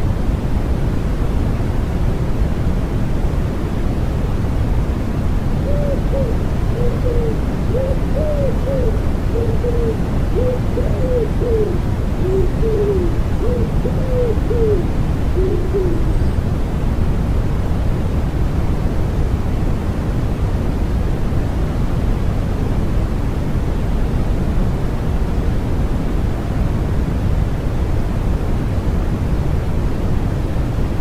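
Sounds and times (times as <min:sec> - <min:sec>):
steady white noise hiss: 0:00.0 - 0:31.0
wood pigeon cooing: 0:05.6 - 0:16.2.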